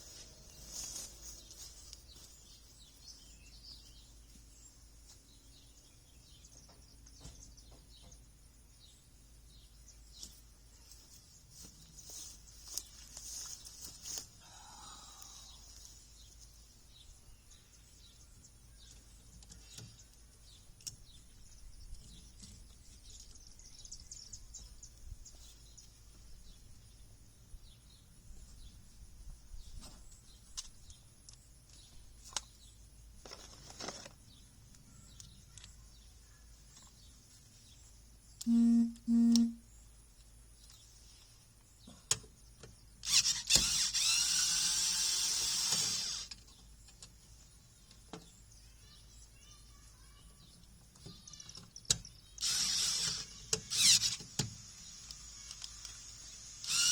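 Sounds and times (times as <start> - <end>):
short loud buzzes: 38.5 - 39.6
power tool running: 43.1 - 46.3, 52.4 - 56.9.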